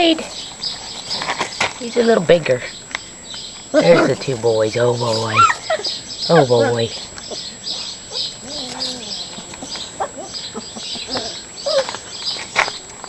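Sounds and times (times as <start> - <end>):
high-pitched chirping: 2.7 - 12.4
puppies whimpering and squeaking: 3.7 - 4.3, 4.9 - 12.6.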